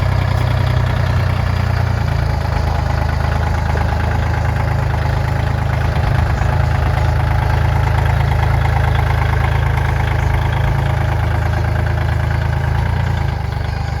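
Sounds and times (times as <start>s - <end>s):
tractor diesel engine idling: 0.0s - 14.0s.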